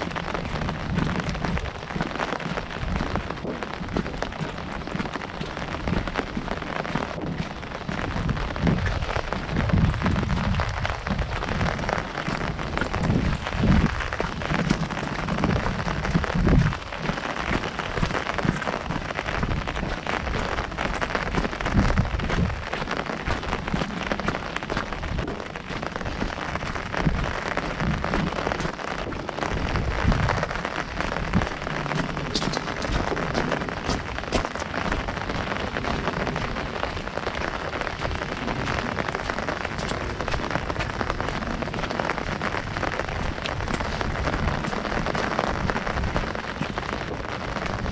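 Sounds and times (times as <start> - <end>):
heavy rain on an umbrella: 0.0 - 47.9.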